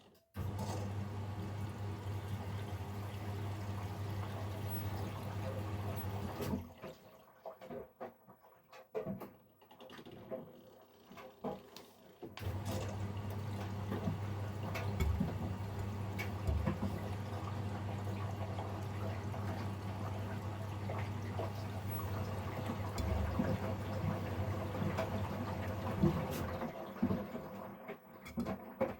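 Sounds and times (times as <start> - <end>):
water running into drum: 0.4 - 8.0, 12.4 - 28.6
washing machine hum: 0.4 - 28.9
water splashing: 12.8 - 26.7
knocks in washing machine: 14.8 - 17.2, 22.8 - 25.1.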